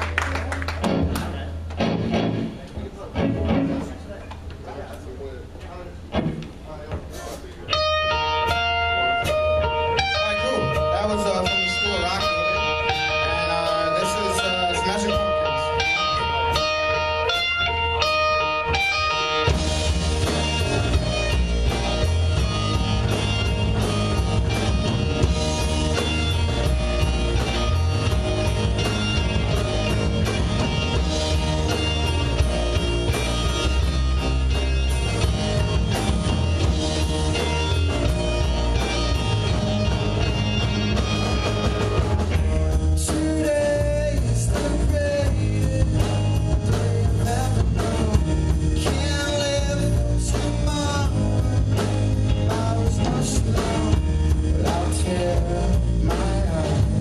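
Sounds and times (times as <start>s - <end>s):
electric guitar melody: 0.0s - 4.0s, 7.7s - 57.0s
live rock band playing: 0.0s - 4.6s, 6.0s - 57.0s.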